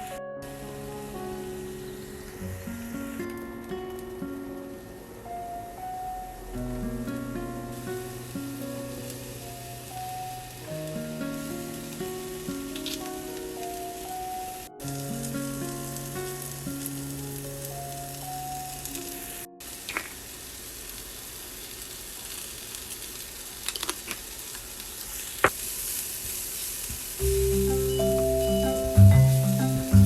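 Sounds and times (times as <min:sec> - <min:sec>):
light background music: 0:00.0 - 0:19.6, 0:27.2 - 0:30.0
food sizzling in a frying pan: 0:05.8 - 0:30.0.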